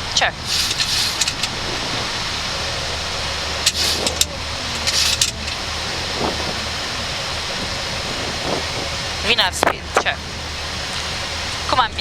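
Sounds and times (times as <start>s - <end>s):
aircraft engine noise: 0.0s - 12.0s
airflow rush: 0.3s - 12.0s
low hum: 0.3s - 12.0s
short hissy bursts: 0.5s - 2.4s, 3.1s - 6.6s.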